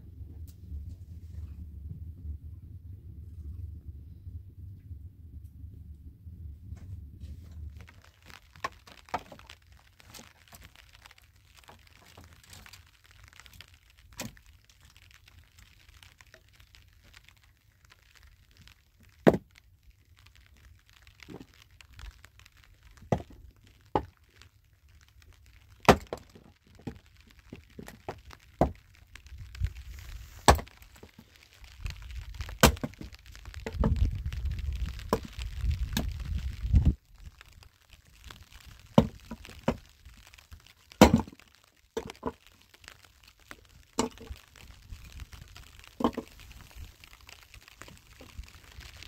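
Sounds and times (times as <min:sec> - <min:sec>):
low rumble: 0:00.0 - 0:07.9
firewood cracking and snapping: 0:06.7 - 0:49.0.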